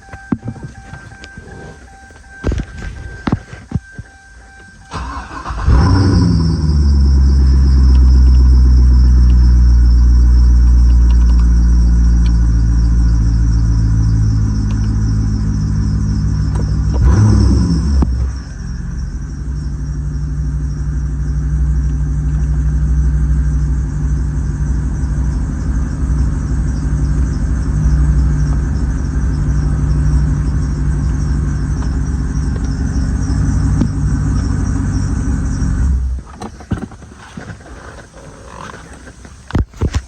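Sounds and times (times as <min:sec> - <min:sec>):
car engine idling: 0:00.0 - 0:40.0
light clicks: 0:10.8 - 0:11.6.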